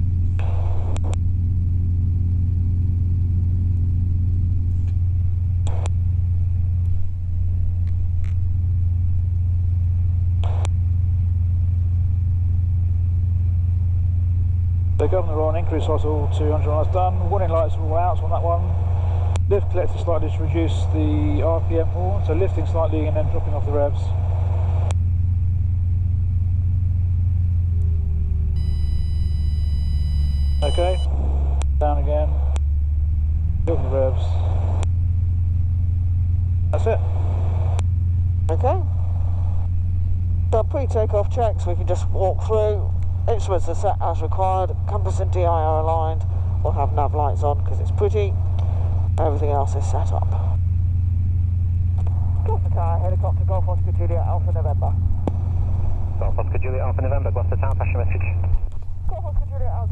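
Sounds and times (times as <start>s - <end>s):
helicopter engine and rotor drone: 0.0s - 59.9s
click: 0.4s - 1.2s, 5.6s - 6.0s
high warning tone: 28.6s - 32.6s.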